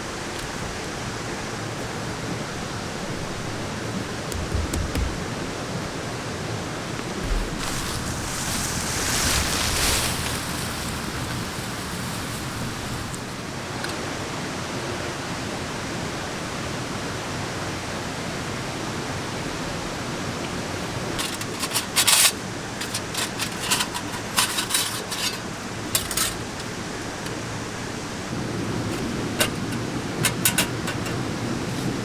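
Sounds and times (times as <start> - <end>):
rain hissing: 0.3 - 13.9, 20.0 - 32.0
sharp clicks and rustles: 3.0 - 6.0, 21.0 - 27.7, 28.4 - 32.0.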